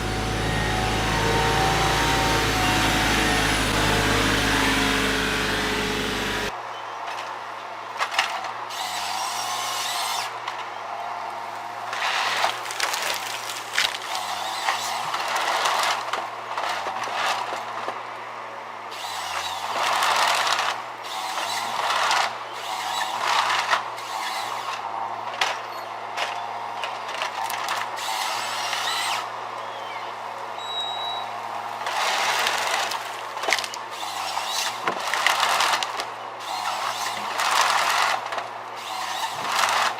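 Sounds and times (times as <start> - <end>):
harsh cutting noise: 0.0 - 6.5
machine engine running: 0.0 - 6.5.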